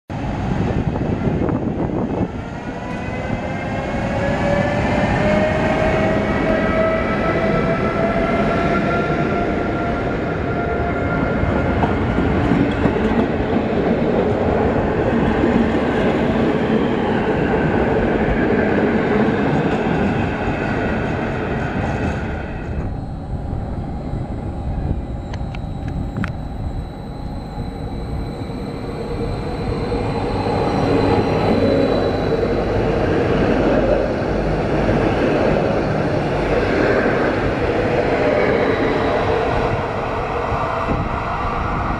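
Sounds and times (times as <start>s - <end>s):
passenger train rumbling past: 0.1s - 41.9s
electric train running past: 0.2s - 41.9s
thin whining tones: 22.2s - 33.2s.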